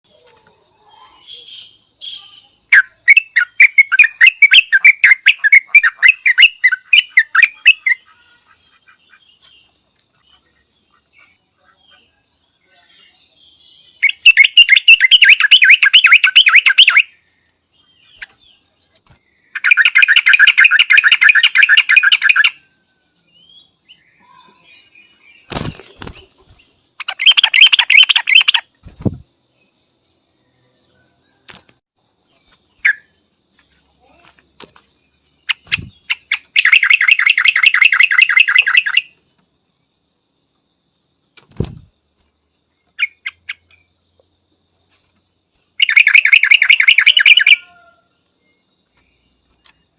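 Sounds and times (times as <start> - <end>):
bulbul chattering: 1.2 - 9.7, 13.9 - 17.2, 18.0 - 22.6, 25.4 - 29.4, 35.3 - 39.2, 45.8 - 47.8.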